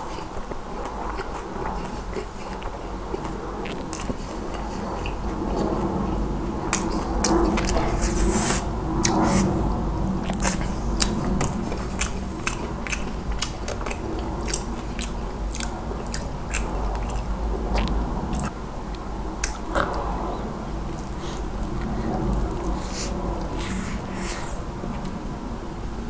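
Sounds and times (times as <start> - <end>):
crisp chewing crunches: 0.0 - 9.6, 10.2 - 20.2.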